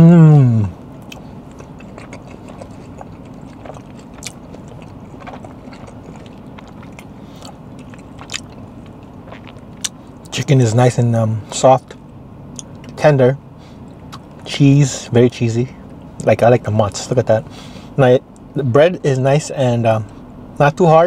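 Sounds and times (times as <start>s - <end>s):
falling hum: 0.0s - 21.0s
man chewing: 0.1s - 10.4s, 13.6s - 14.5s.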